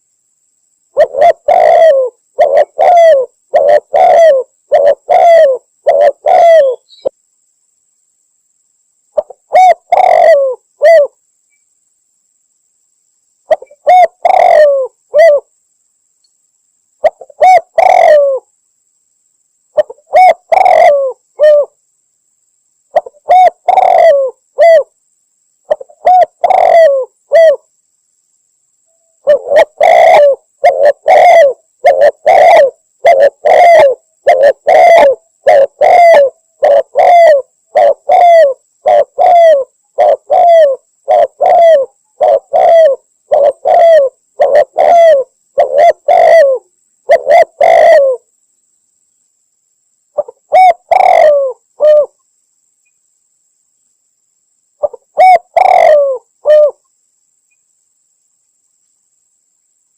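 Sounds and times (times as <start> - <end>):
dove cooing: 0.9 - 7.1, 9.2 - 11.2, 13.5 - 15.5, 17.0 - 18.5, 19.8 - 21.8, 22.9 - 24.9, 25.7 - 27.7, 29.2 - 48.3, 50.2 - 52.2, 54.8 - 56.8.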